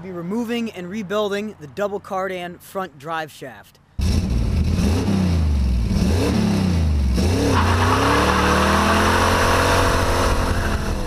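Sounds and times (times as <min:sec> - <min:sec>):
car engine revving: 0:04.0 - 0:11.0.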